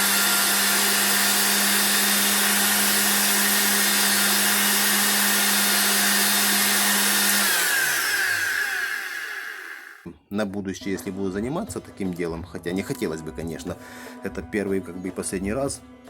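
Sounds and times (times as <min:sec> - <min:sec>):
vacuum cleaner motor whining: 0:00.0 - 0:10.1.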